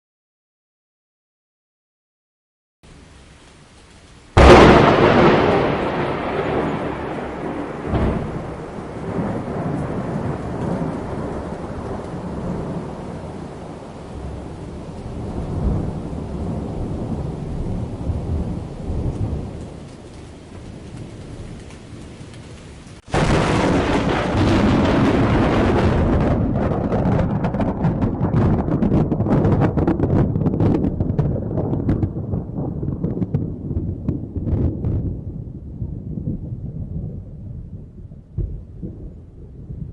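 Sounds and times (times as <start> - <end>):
thunder clap: 4.3 - 22.1, 23.0 - 39.9
rolling thunder rumble: 4.3 - 39.9.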